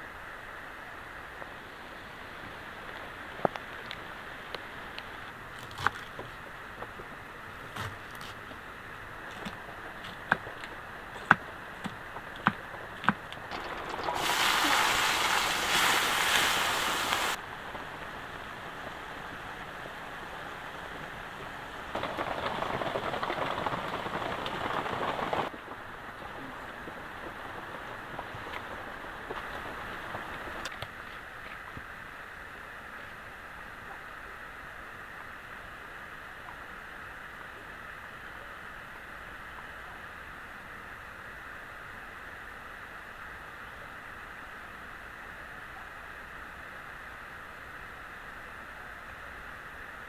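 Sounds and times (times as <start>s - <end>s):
sharp drips: 10.1s - 17.4s
heavy rain falling: 12.7s - 30.7s.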